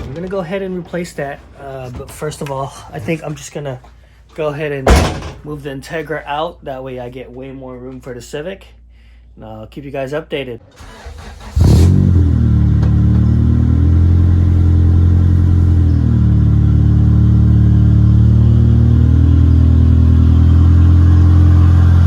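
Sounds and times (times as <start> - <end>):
car engine starting and idling: 10.6 - 22.0.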